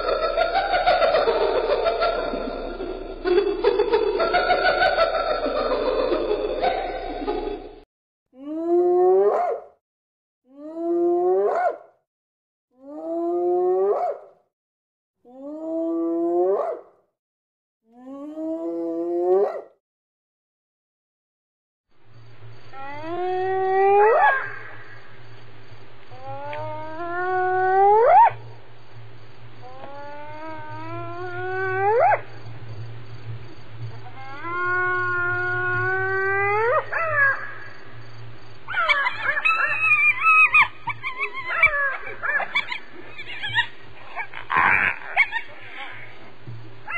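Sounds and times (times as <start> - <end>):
low steady hum: 28.4 - 36.3
hyena whooping: 34.1 - 37.7, 38.7 - 46.3
choppy animal call: 38.7 - 46.9.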